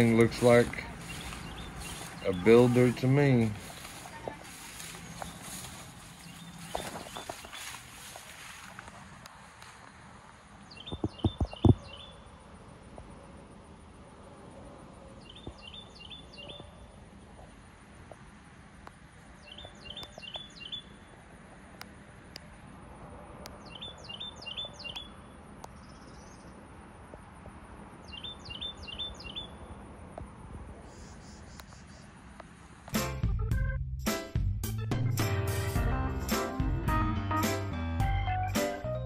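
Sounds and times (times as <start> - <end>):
songbird singing downslurred notes: 0.0 - 7.8, 10.7 - 12.2, 15.2 - 16.8, 19.4 - 21.0, 23.6 - 26.5, 28.0 - 29.6.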